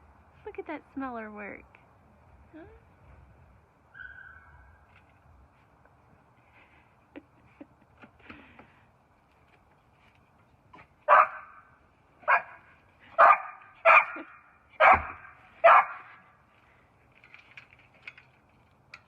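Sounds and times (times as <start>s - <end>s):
dog barking: 11.1s - 11.6s, 12.2s - 16.2s.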